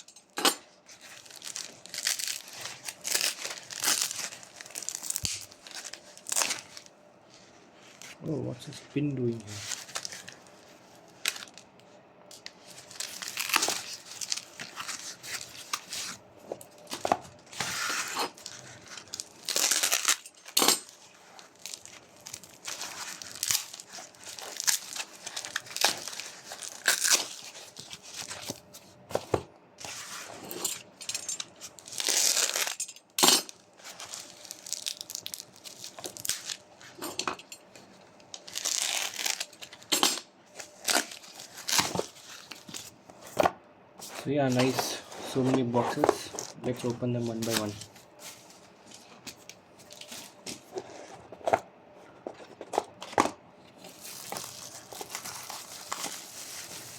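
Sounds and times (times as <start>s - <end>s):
packaging tearing and crinkling: 0.9s - 6.9s, 9.3s - 11.6s, 12.6s - 28.7s, 31.1s - 37.0s, 38.3s - 43.0s, 45.9s - 48.0s, 53.8s - 56.9s.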